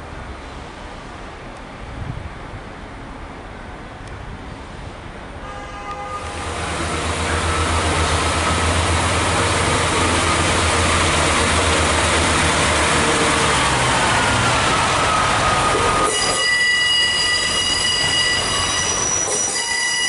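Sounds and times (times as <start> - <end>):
train wheel and rail noise: 0.0 - 20.0
diesel engines droning low: 6.2 - 16.4
thin high wheel squeal: 15.0 - 20.0.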